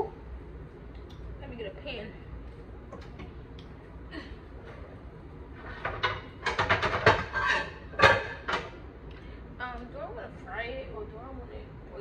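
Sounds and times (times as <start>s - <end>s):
cookware clattering: 5.8s - 8.7s.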